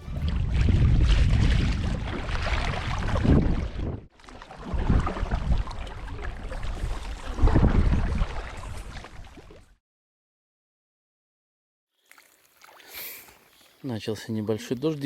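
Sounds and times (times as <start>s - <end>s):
wind gusting on microphone: 0.0s - 9.3s
water noise: 0.0s - 9.8s, 12.0s - 15.0s.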